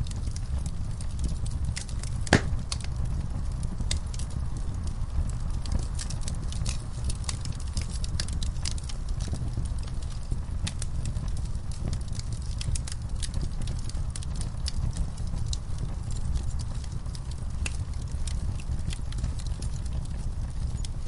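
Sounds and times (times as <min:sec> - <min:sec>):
fire crackling: 0:00.0 - 0:21.0
low rumble of flames: 0:00.0 - 0:21.0
loud fire pop: 0:02.2 - 0:02.8.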